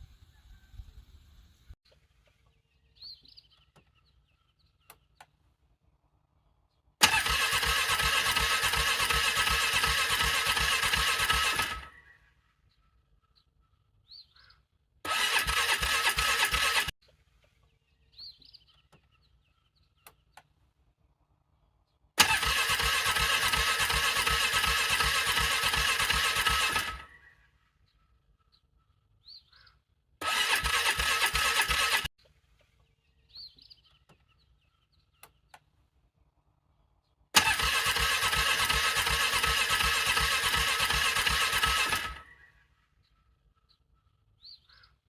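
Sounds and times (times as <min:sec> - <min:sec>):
electric starter cranking engine: 0:07.0 - 0:12.0, 0:15.0 - 0:17.0, 0:22.2 - 0:27.2, 0:30.2 - 0:32.1, 0:37.4 - 0:42.4.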